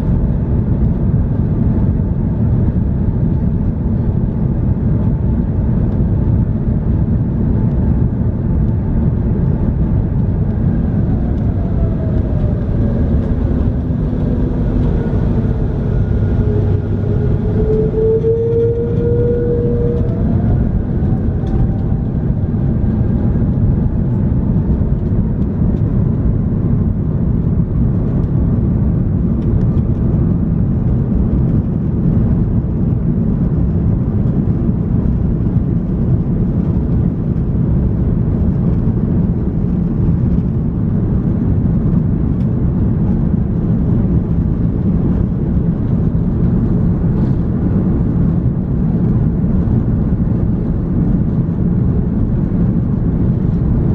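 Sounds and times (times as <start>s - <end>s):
jet engine cabin rumble: 0.0s - 53.9s
high whining tones: 10.5s - 23.4s.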